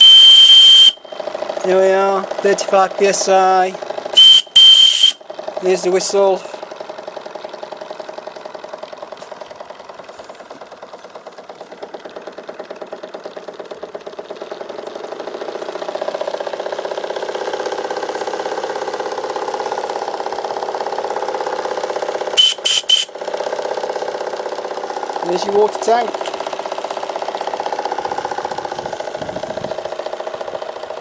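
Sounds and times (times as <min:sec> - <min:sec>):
steam whistle toots: 0:00.0 - 0:01.2, 0:04.2 - 0:05.2, 0:22.4 - 0:23.2
steam engine running: 0:00.0 - 0:31.0.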